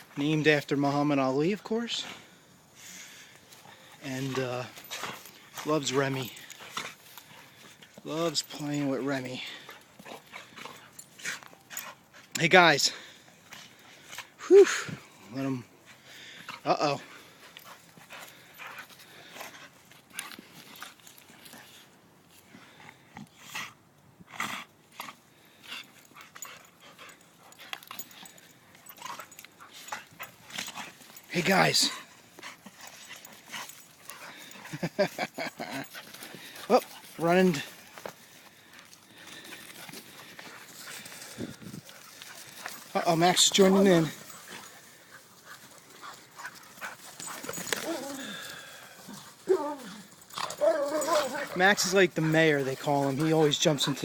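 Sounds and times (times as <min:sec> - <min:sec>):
dogs play-fighting: 0:02.0 - 0:12.4, 0:13.0 - 0:54.0
dog crying: 0:50.5 - 0:51.5.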